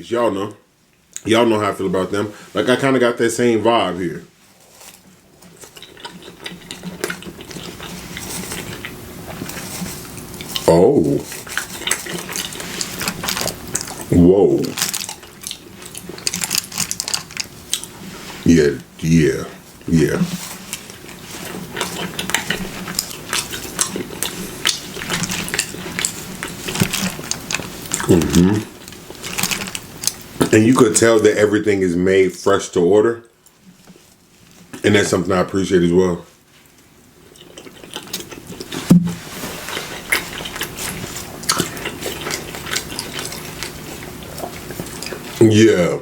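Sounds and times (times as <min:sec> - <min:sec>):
chewing food with mouth smacks: 0:04.6 - 0:18.4, 0:19.8 - 0:30.6, 0:36.7 - 0:45.4.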